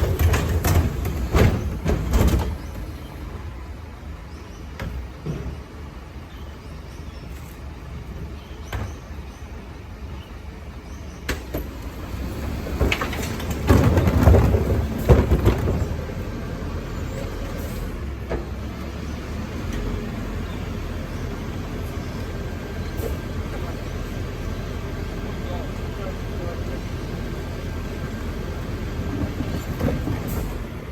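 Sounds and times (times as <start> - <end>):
garbage truck engine running: 0.0 - 4.2, 11.4 - 30.9.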